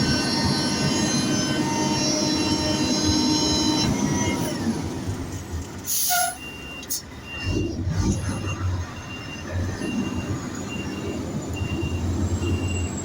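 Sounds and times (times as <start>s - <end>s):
high metallic squeals: 0.0s - 4.6s
heavy vehicle rumble: 0.0s - 13.0s.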